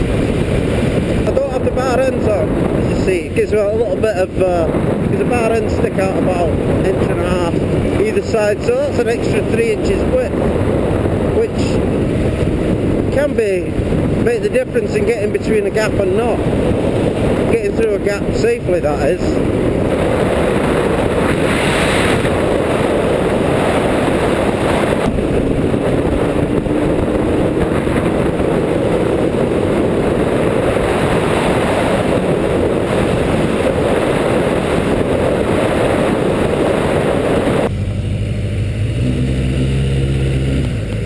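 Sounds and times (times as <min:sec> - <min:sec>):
wind rush: 0:00.0 - 0:41.0
motorcycle engine: 0:19.4 - 0:41.0.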